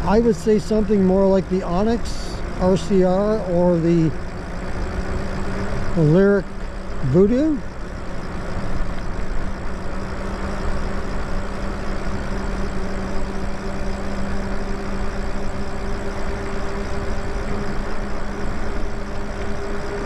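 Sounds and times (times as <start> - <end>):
electric motor low hum: 0.0 - 20.0.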